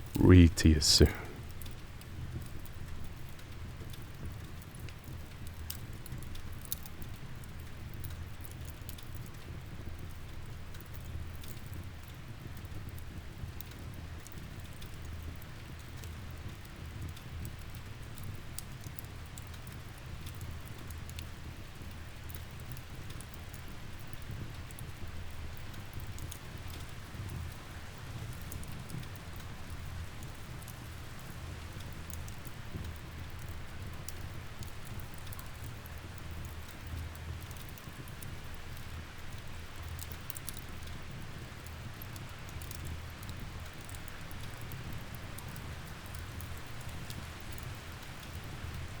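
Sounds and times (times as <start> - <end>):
steady rain: 22.3 - 49.0.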